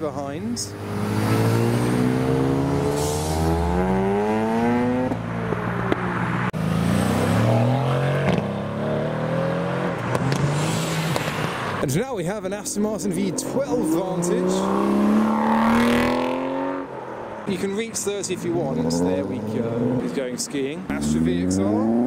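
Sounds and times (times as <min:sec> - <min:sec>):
car engine accelerating hard: 0:00.6 - 0:11.8, 0:13.2 - 0:16.9
second car engine revving: 0:00.6 - 0:11.8, 0:13.1 - 0:17.4, 0:18.4 - 0:20.1, 0:20.8 - 0:22.0.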